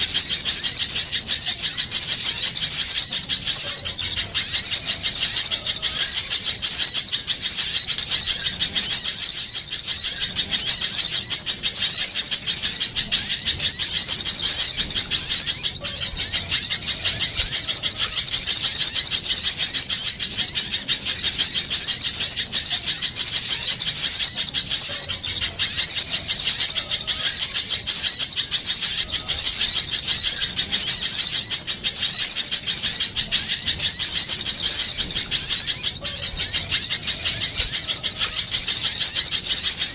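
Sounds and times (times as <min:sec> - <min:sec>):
small songbirds chirping and twittering: 0:00.0 - 0:39.9.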